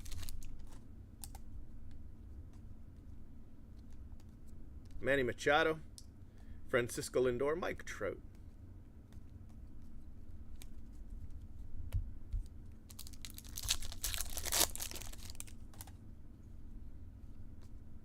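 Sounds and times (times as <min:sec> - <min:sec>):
foil wrapper crinkling and tearing: 0:00.0 - 0:00.6, 0:12.9 - 0:15.9.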